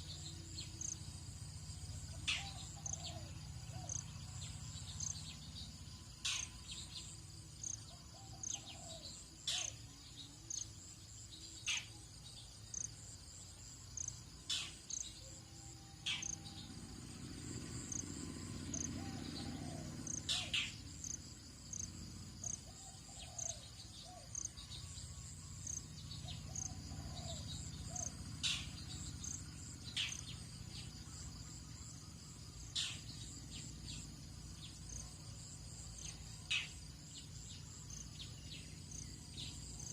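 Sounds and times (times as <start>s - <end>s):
low steady rumble: 0.0s - 8.1s, 15.1s - 23.0s
insect chirping in a pulse: 0.0s - 39.9s
insects trilling: 0.0s - 39.9s.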